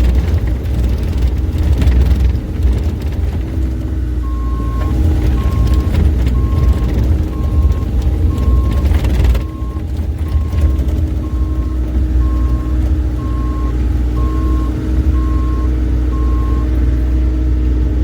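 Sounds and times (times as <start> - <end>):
clatter: 0.0 - 15.4
diesel engine running: 0.0 - 18.0
reversing alarm beeping: 4.2 - 16.8.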